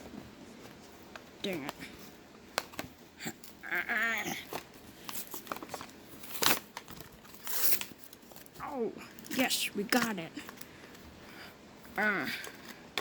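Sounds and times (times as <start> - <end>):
plastic packaging clicking and crackling: 4.4 - 11.0.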